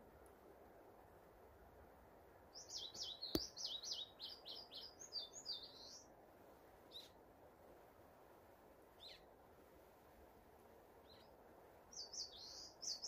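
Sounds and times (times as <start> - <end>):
songbird singing: 2.5 - 6.2, 6.8 - 7.2, 8.9 - 9.4, 11.0 - 13.0.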